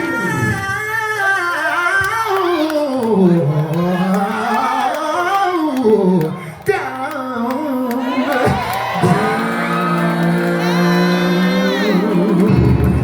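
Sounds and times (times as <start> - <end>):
band playing: 0.0 - 1.3, 8.9 - 13.0
vocal group singing in harmony: 0.0 - 2.6, 7.6 - 13.0.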